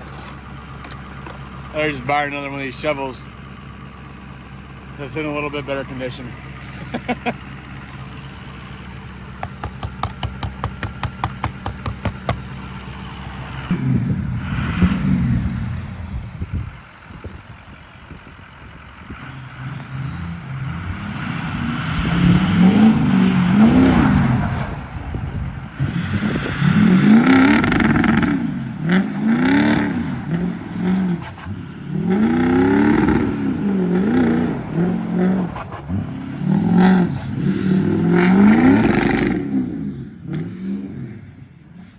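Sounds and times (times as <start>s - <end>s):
diesel engine idling: 0.0s - 41.9s
engine revving up and down: 5.0s - 16.8s, 18.9s - 41.9s
high whistling glides: 19.7s - 41.9s.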